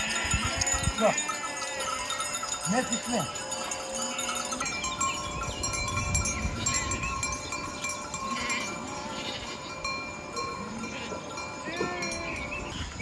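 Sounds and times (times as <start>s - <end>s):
sheep bleating: 0.0s - 3.8s, 10.8s - 12.5s
sheep bells ringing: 0.0s - 13.0s.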